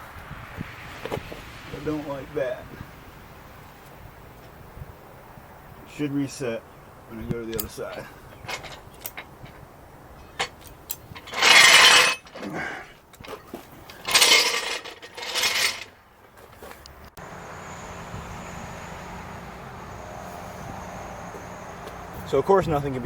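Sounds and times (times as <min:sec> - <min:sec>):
steady hiss: 0:00.0 - 0:11.6
metal jack scraping and rattling: 0:07.6 - 0:09.6, 0:10.2 - 0:16.8.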